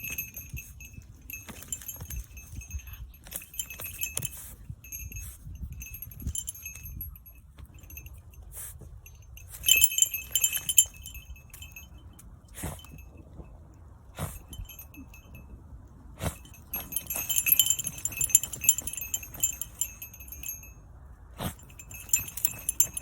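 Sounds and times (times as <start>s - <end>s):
dog digging rustling: 0.0s - 5.2s, 9.5s - 11.0s, 16.2s - 20.4s, 21.4s - 23.0s
metal collar jingling: 0.0s - 13.4s, 14.2s - 15.5s, 16.2s - 20.8s, 21.4s - 23.0s.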